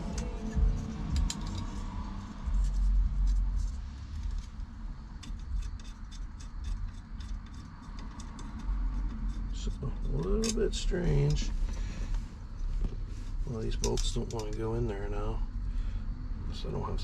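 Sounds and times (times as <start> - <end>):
low rumble: 0.0 - 17.0
metal tools clicking and knocking: 0.1 - 1.8, 5.2 - 11.5, 13.8 - 14.7.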